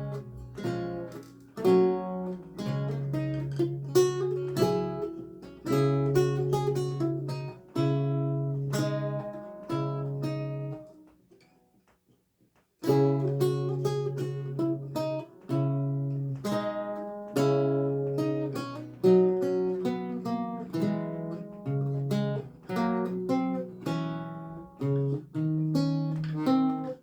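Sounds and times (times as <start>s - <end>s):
solo lute music: 0.0s - 11.9s, 12.8s - 27.0s.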